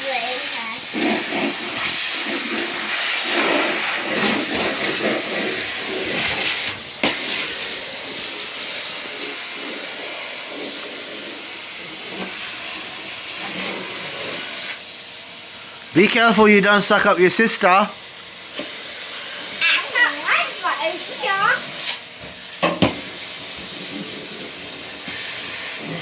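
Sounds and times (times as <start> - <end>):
vacuum cleaner running: 0.0 - 26.0
beads rattling in vacuum: 0.1 - 14.6.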